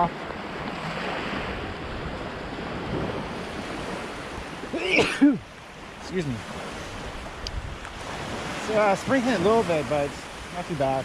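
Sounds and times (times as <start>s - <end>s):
wind on microphone: 0.0s - 10.6s
surf washing onto beach: 0.0s - 11.0s.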